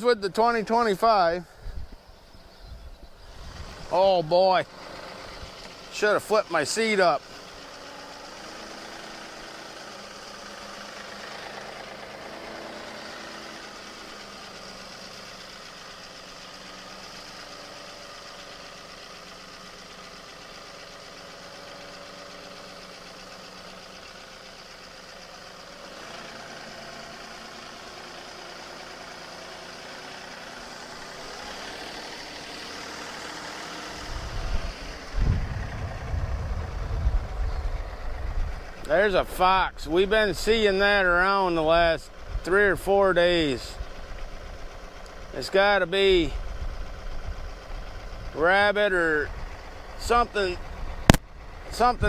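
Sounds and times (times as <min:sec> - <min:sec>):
tractor diesel engine running: 0:00.0 - 0:52.0
heavy low thumps: 0:34.1 - 0:38.6.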